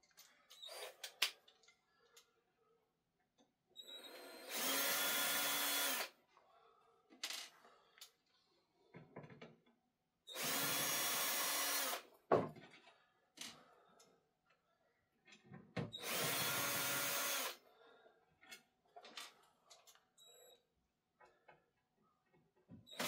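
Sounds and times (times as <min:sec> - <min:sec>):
power screwdriver whirring: 0:03.8 - 0:06.1, 0:16.0 - 0:17.6.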